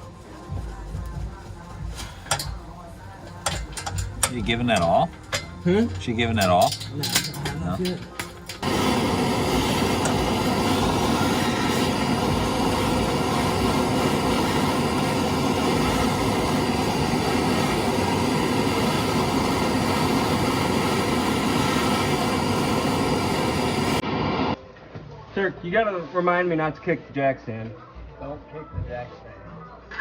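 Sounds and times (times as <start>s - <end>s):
steady mechanical drone: 0.8s - 24.6s.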